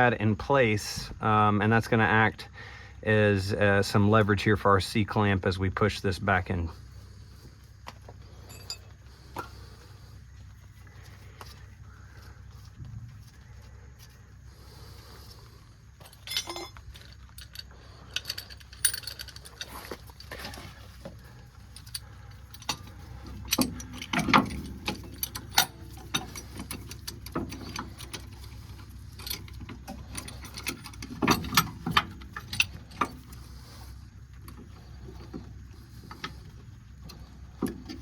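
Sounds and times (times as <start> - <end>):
metal tools clicking and clinking: 8.4 - 9.6, 16.0 - 33.7.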